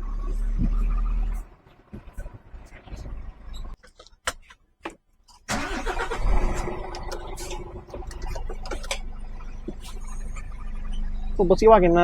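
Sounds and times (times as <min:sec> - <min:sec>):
diesel engine starting: 0:05.5 - 0:12.0.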